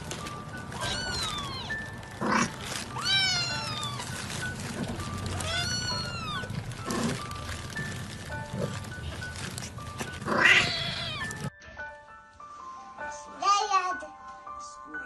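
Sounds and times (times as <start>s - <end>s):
light background music: 0.0s - 15.0s
cat meowing: 0.7s - 4.2s, 5.3s - 6.6s, 10.2s - 11.5s.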